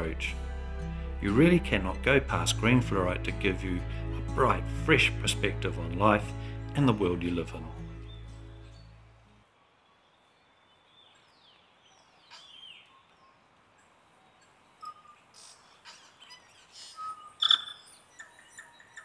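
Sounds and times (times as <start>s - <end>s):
birds chirping and calling: 11.0s - 19.0s.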